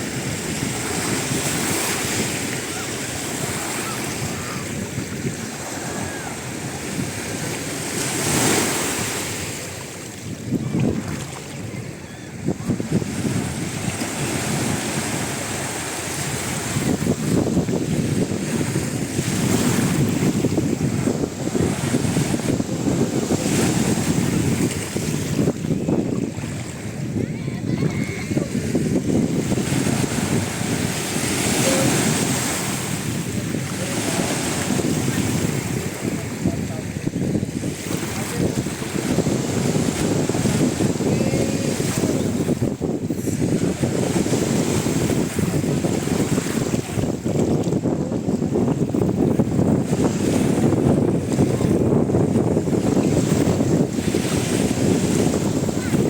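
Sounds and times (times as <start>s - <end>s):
sea surf: 0.0s - 56.0s
waves washing on beach: 0.0s - 56.0s
wind buffeting microphone: 0.0s - 56.0s.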